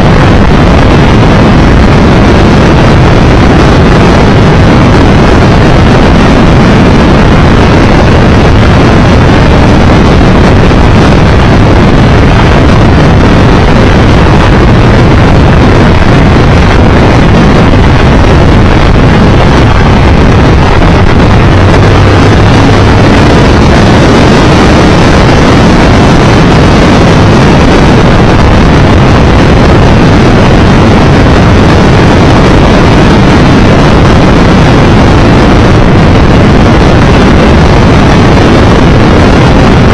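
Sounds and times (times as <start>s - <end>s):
road noise: 0.0s - 39.9s
wind roar on microphone: 0.0s - 39.9s
motorcycle engine: 2.5s - 30.1s.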